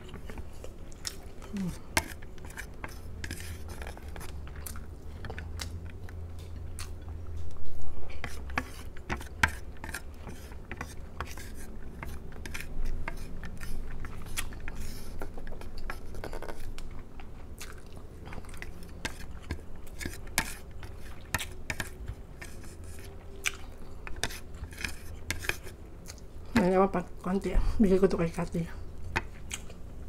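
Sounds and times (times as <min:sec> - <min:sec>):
close chewing with wet crunches: 0:00.0 - 0:11.0, 0:11.8 - 0:26.4, 0:29.0 - 0:29.9.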